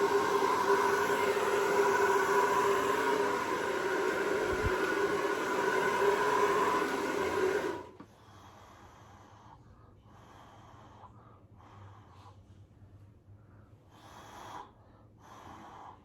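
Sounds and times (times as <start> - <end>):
hair dryer running: 0.0 - 8.1.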